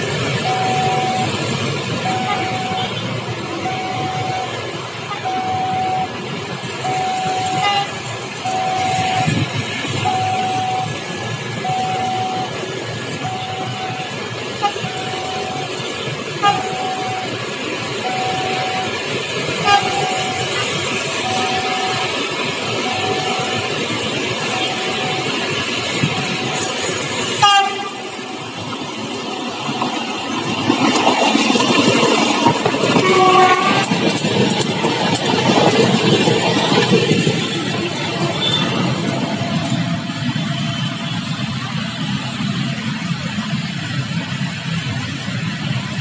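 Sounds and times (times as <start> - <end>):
road traffic noise: 0.0 - 46.0
train rumble: 0.0 - 46.0
level crossing alarm beeping: 0.1 - 44.4
train horn blast: 2.0 - 4.4, 6.9 - 9.4, 13.2 - 17.4, 19.6 - 28.6, 32.8 - 34.4.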